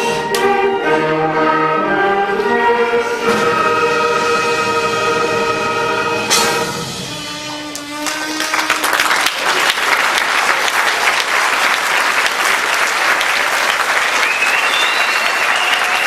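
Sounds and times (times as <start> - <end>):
audience applause: 7.9 - 16.0
high gliding whistle: 14.2 - 16.0.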